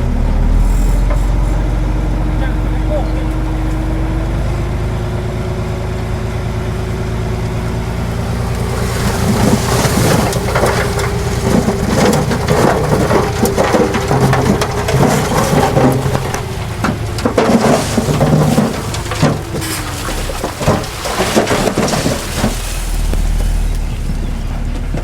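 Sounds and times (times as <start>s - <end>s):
diesel engine running: 0.0s - 25.0s
soil and stones crunching: 7.8s - 25.0s.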